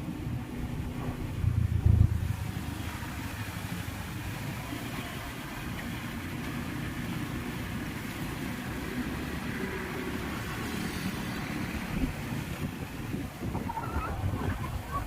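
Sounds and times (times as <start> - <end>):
motor vehicle engine running: 0.0 - 9.3.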